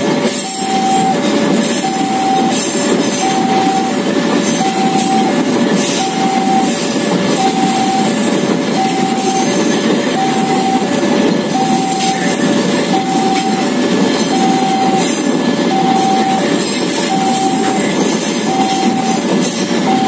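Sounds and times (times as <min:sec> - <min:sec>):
train wheels rumbling on rails: 0:00.0 - 0:20.0
two-tone crossing bell: 0:00.2 - 0:20.0.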